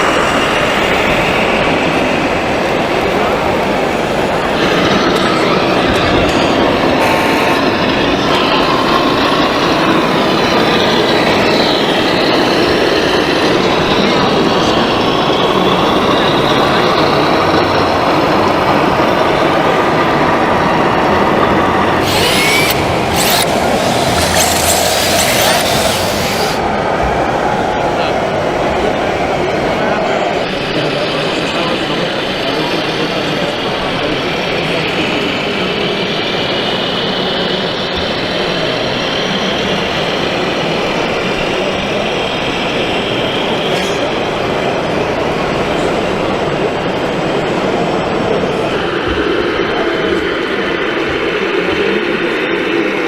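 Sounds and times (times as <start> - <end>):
mechanical running noise: 5.9 - 14.5, 21.4 - 28.4
faint high whine: 6.8 - 8.3
short hissing bursts: 22.0 - 26.6.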